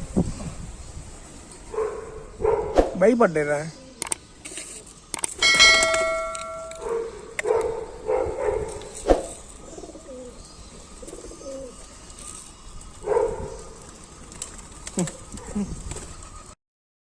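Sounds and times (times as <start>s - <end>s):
pigeons cooing: 5.5s - 16.6s.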